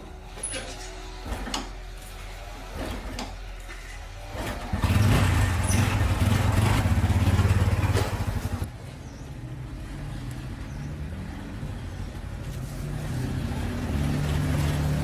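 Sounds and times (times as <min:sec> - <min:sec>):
motorbike engine running: 0:01.2 - 0:08.7.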